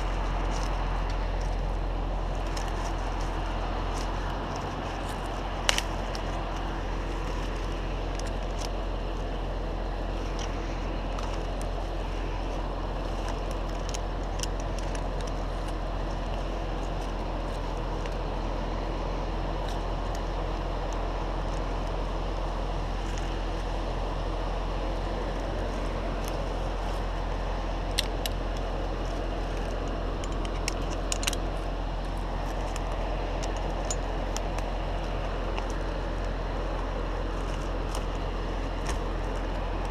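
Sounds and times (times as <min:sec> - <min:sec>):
large engine running: 0:00.0 - 0:39.9.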